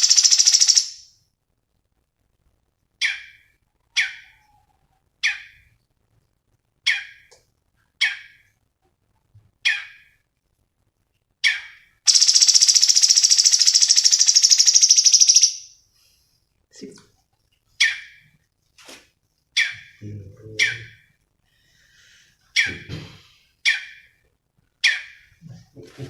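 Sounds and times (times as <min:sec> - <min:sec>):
songbird sharp calls: 0:00.0 - 0:01.0, 0:11.4 - 0:15.7
songbird fast trill: 0:00.0 - 0:01.1, 0:12.1 - 0:15.7.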